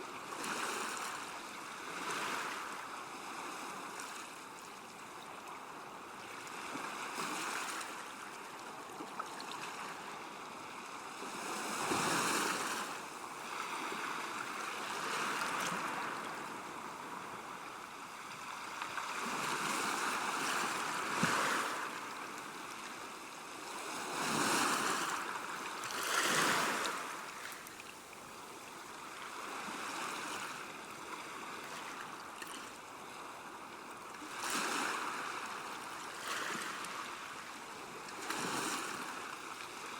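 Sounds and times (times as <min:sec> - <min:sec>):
river water washing: 0:10.9 - 0:33.4.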